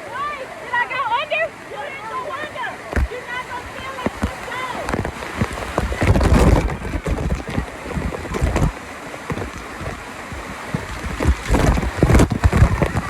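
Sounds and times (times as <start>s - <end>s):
rushing water: 0.0s - 13.0s
wind buffeting microphone: 2.9s - 13.0s.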